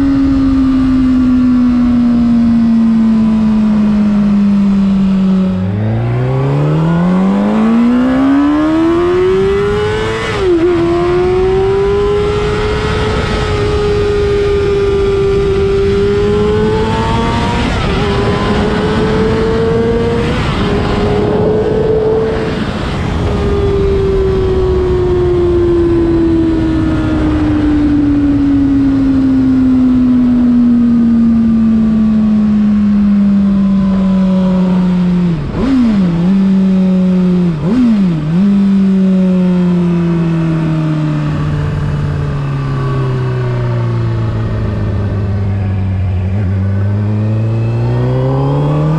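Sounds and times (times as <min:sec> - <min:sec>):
motorcycle engine revving: 0:00.0 - 0:48.9
wind rush: 0:03.8 - 0:30.4.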